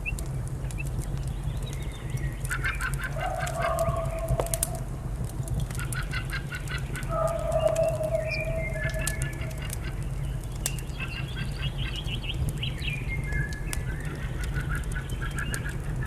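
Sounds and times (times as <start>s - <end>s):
fireplace crackling: 0.0s - 16.0s
bird call: 6.6s - 10.0s.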